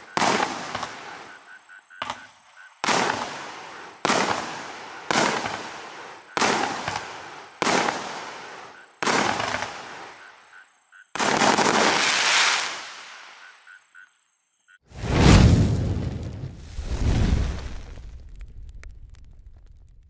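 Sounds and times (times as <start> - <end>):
firework bangs: 0.0 - 1.4, 2.0 - 10.2, 14.9 - 20.0
firework volley: 0.0 - 10.5, 11.2 - 13.5, 14.9 - 20.0.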